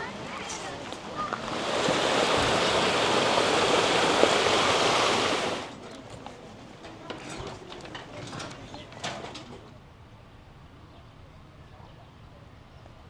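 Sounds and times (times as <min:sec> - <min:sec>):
waterfall rushing: 0:01.0 - 0:05.7.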